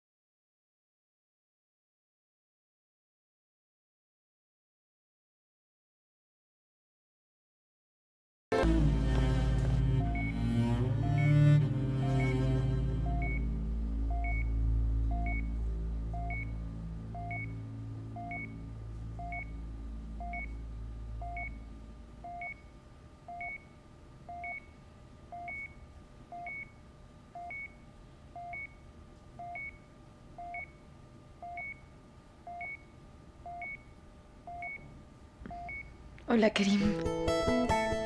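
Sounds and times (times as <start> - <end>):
low background music: 8.5 - 22.7, 35.5 - 38.0
patient monitor beeping: 8.6 - 28.8, 29.4 - 30.8, 31.4 - 36.0.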